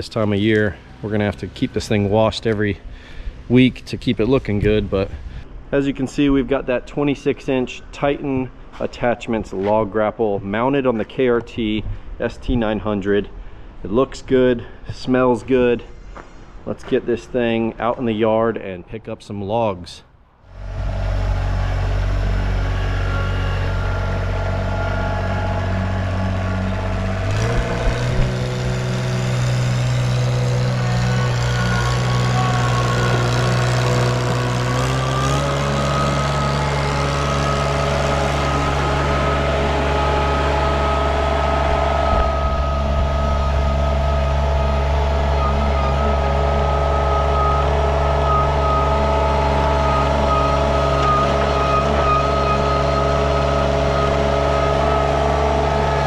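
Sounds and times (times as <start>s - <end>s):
skid steer engine running: 20.5s - 56.0s.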